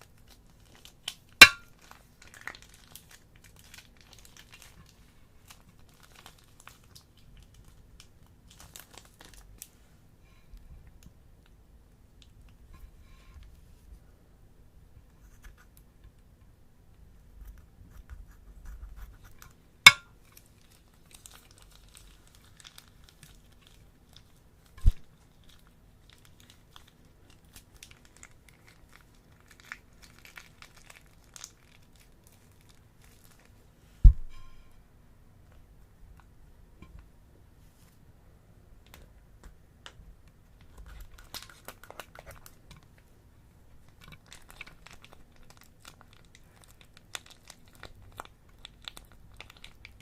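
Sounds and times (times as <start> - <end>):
slime crinkling crackles: 0.0 - 9.8, 19.0 - 33.8, 39.8 - 50.0.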